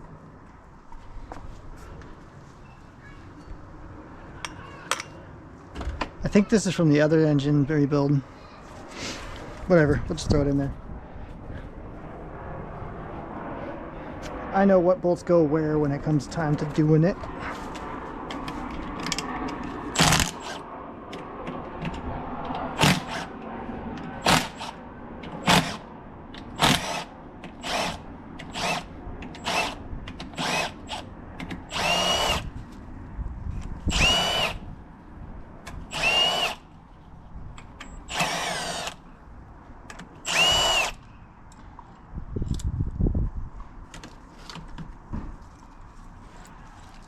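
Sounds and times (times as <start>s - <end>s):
power drill whining: 26.6s - 29.8s, 30.4s - 31.0s, 31.7s - 32.5s, 33.9s - 34.6s, 35.9s - 36.6s, 38.0s - 39.0s, 40.2s - 41.0s.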